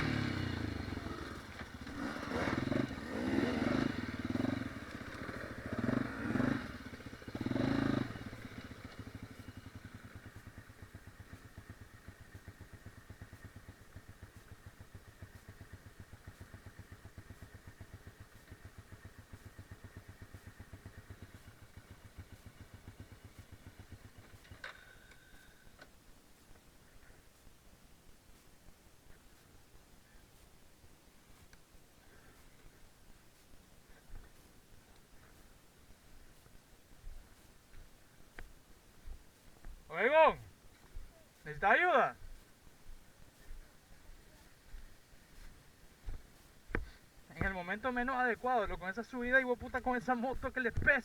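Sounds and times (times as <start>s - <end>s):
motorcycle engine revving and idling: 0.0s - 25.9s, 38.4s - 51.0s.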